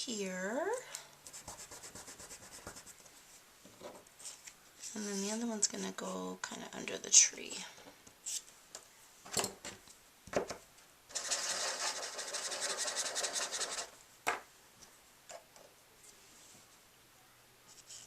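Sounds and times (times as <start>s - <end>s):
pen tip scribbling on paper: 11.1s - 13.9s.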